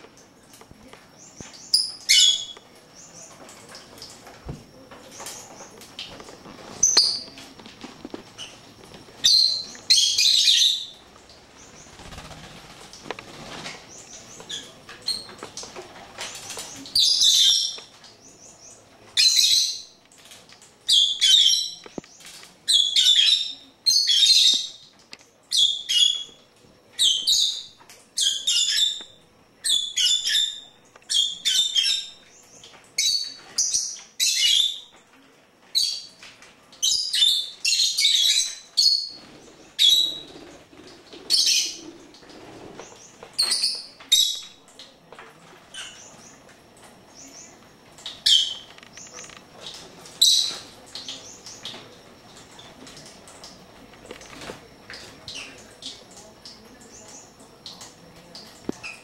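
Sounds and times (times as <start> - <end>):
pet bird chirping: 1.2 - 3.3.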